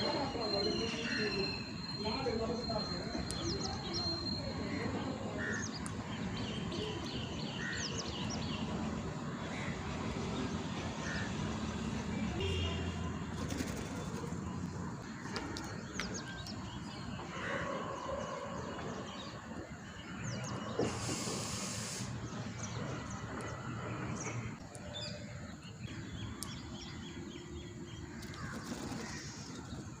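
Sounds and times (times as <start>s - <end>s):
birds chirping: 0.0s - 30.0s
outdoor background noise: 0.0s - 30.0s
burst of hiss: 20.8s - 22.3s.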